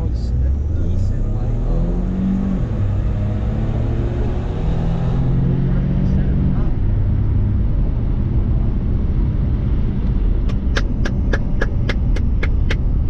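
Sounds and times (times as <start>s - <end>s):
vehicle engine rumbling: 0.0s - 13.0s
sharp rapid ticks: 10.5s - 12.8s.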